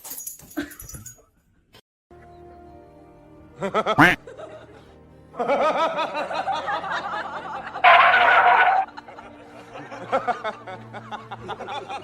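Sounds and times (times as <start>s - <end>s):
background music: 2.1s - 12.0s
person laughing: 3.6s - 4.6s.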